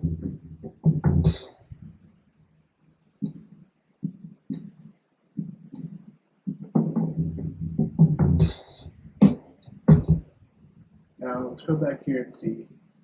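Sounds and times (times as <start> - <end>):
drum kit playing: 0.0 - 1.7, 6.5 - 10.2.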